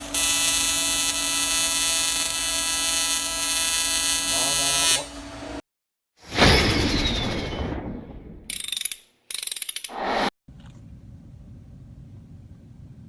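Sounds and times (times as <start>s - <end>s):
welding arc buzzing: 0.0s - 5.6s.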